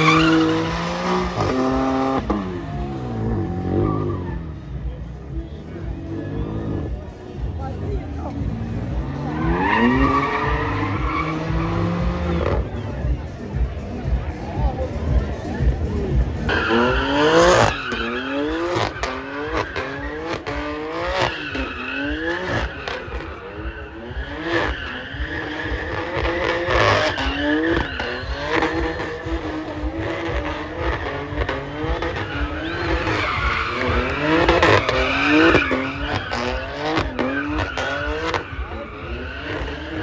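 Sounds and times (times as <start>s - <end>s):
car engine revving hard: 0.0s - 4.7s, 6.0s - 12.9s, 15.4s - 40.0s
tyres squealing on tarmac: 0.0s - 4.7s, 9.0s - 12.7s, 16.5s - 40.0s.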